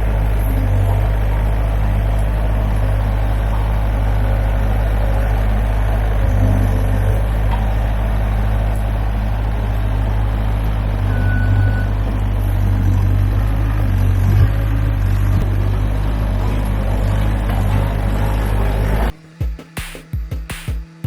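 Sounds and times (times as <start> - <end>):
diesel engine running: 0.0 - 19.2
short high beep: 11.1 - 11.9.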